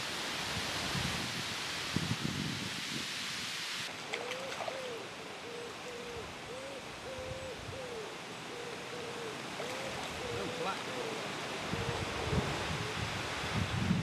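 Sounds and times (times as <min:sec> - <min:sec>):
wind noise on microphone: 0:00.4 - 0:03.6, 0:11.6 - 0:14.0.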